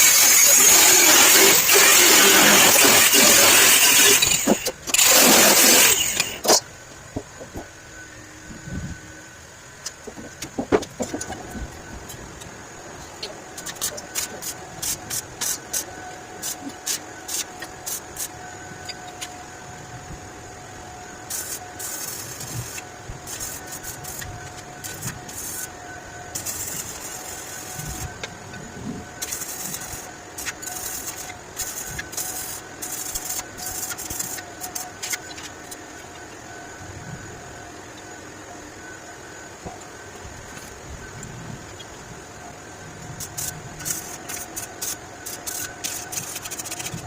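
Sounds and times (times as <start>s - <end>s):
hissing crackling bursts: 0.0s - 6.6s, 21.3s - 25.7s, 26.3s - 28.2s, 28.8s - 35.9s, 43.1s - 47.0s
faint steady hum: 0.0s - 47.0s.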